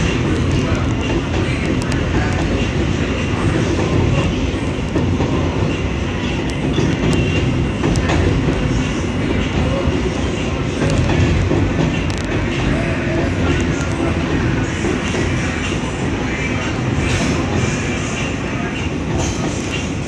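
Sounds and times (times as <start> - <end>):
subway wheels rumbling on rails: 0.0 - 20.0
faint track clicks: 0.2 - 2.9, 9.4 - 12.7, 13.4 - 15.2.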